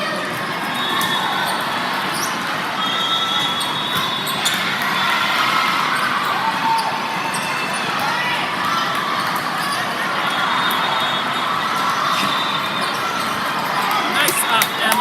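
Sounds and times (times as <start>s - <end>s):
crowd chatter in a hall: 0.0s - 15.0s
sneaker squeaks: 0.7s - 4.7s, 12.0s - 13.4s.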